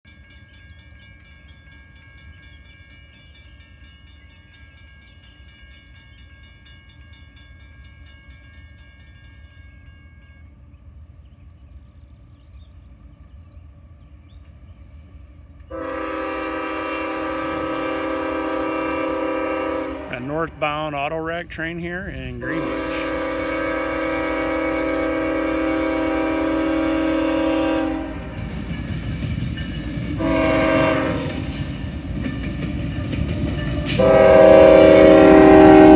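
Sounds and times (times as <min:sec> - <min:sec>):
freight train rumble: 0:00.1 - 0:35.9
locomotive air horn chord: 0:15.7 - 0:28.4, 0:30.2 - 0:31.4, 0:33.9 - 0:35.9.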